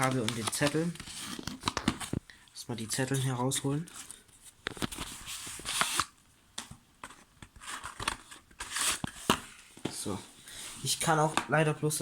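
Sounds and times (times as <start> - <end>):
paper leaflets rustling: 0.0 - 2.2.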